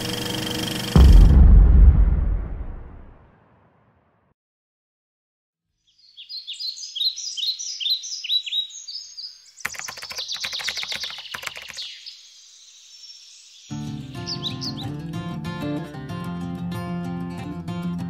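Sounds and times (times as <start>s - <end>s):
birds chirping: 5.8s - 15.0s
guitar music: 13.7s - 18.0s.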